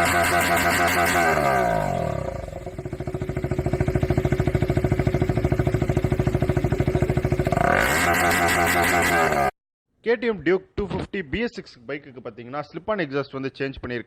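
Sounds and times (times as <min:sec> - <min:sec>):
motorcycle engine idling and revving: 0:00.0 - 0:09.6.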